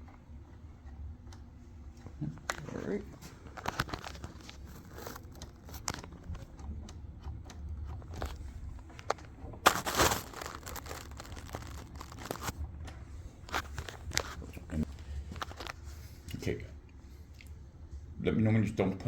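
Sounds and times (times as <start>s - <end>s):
light clicks and crinkling: 0.0s - 17.6s
rustle of handled parts: 3.2s - 6.1s, 8.1s - 12.6s, 13.4s - 16.2s.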